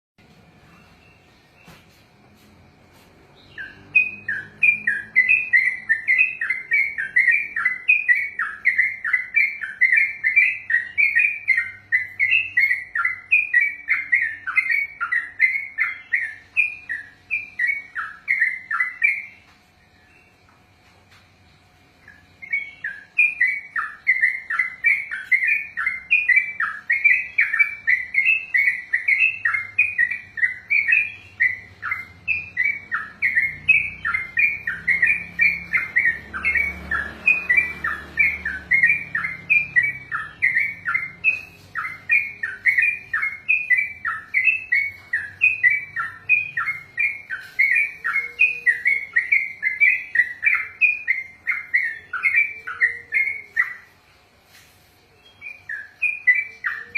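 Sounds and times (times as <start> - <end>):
bird singing bubbly chirps: 3.4 - 20.4, 22.0 - 53.9.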